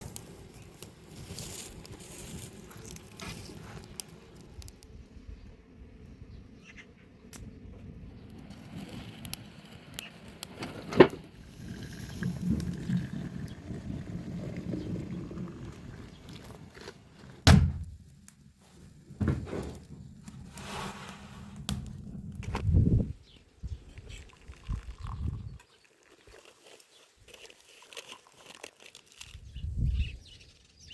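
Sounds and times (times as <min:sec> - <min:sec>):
knocks and thuds: 0:17.4 - 0:17.9, 0:19.2 - 0:19.6
low rumbling: 0:21.2 - 0:23.2.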